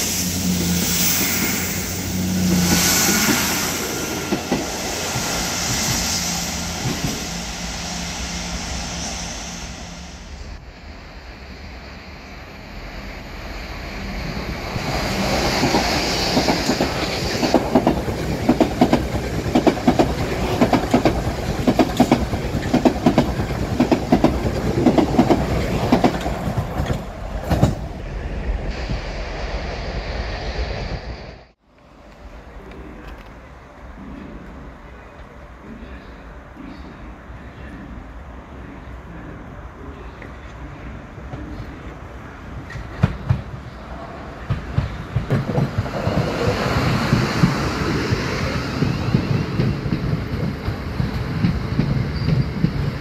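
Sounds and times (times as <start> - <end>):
train wheels clicking over rail joints: 15.3 - 27.9, 44.5 - 53.0.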